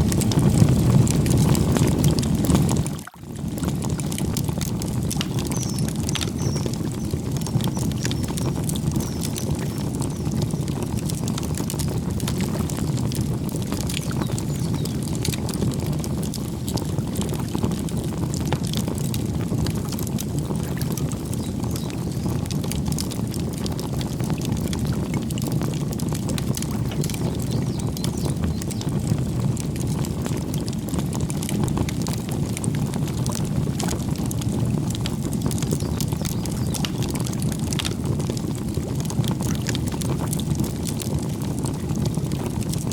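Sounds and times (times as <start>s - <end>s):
campfire crackling: 0.0s - 42.9s
faint bird chirps: 5.5s - 6.7s.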